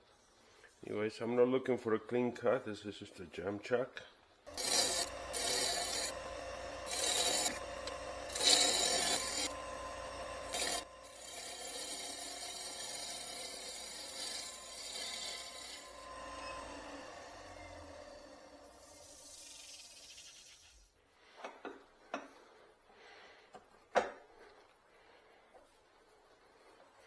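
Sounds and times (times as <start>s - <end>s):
lathe motor hum and whine: 4.5s - 20.2s
tool cutting wood on lathe: 4.5s - 20.8s.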